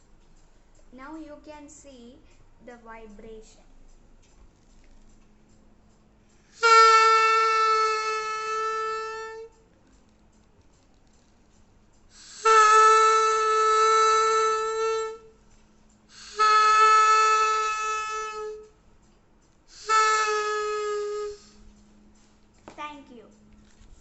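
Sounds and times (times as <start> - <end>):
balloon blowpipe honking: 6.5 - 9.6, 12.2 - 15.4, 16.1 - 18.8, 19.7 - 21.6.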